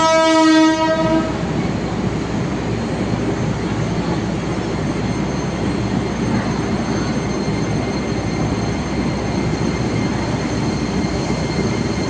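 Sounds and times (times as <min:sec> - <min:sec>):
train horn blast: 0:00.0 - 0:01.4
train rumbling: 0:00.0 - 0:12.0.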